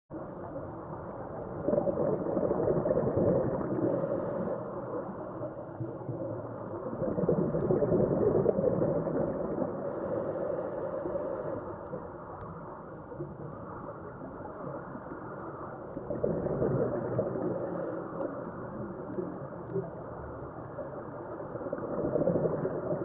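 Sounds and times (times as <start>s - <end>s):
muffled underwater rushing: 0.1s - 23.0s.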